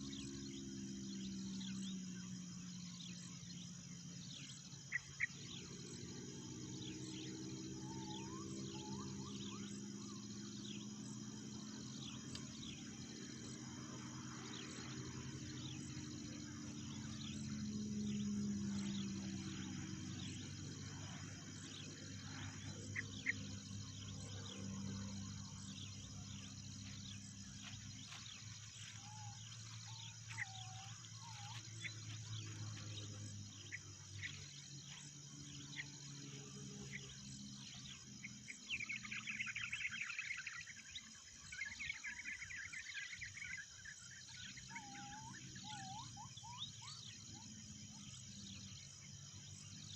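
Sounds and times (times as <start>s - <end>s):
forest birds chirping: 0.0s - 49.9s
high insect drone: 0.0s - 49.9s.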